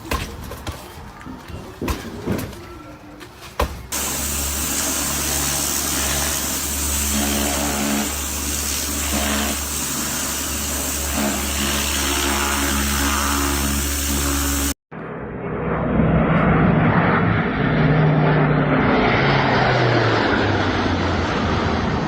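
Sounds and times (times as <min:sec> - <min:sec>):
motor running steadily: 0:03.9 - 0:14.8.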